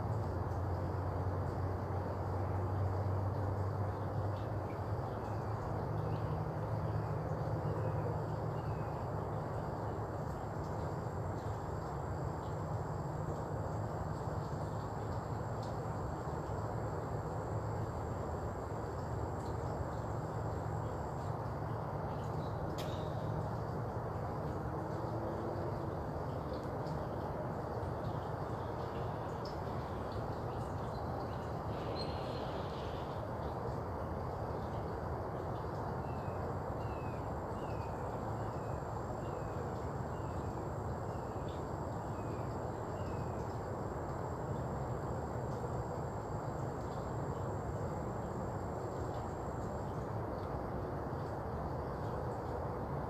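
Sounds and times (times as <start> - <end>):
low background hum: 0.0 - 53.0
low rumble and hiss: 0.0 - 53.0
faint ticks: 9.5 - 16.7, 18.8 - 36.4, 45.3 - 50.6
faint high whine: 35.6 - 52.6.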